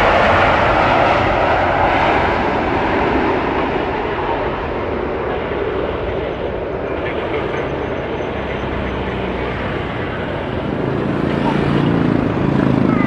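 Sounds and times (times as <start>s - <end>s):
jet engines rushing: 0.0s - 13.0s.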